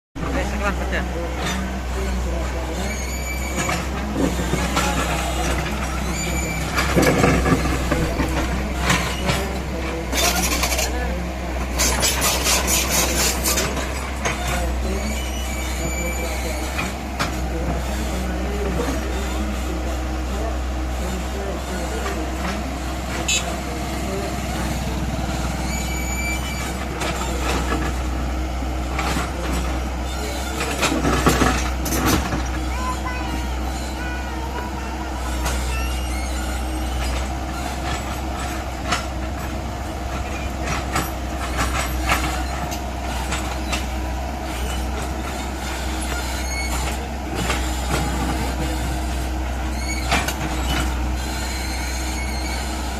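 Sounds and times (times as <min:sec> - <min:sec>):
heavy machinery diesel engine running: 0:00.2 - 0:52.9
machine knocks and clatters: 0:03.6 - 0:11.0, 0:37.0 - 0:49.2.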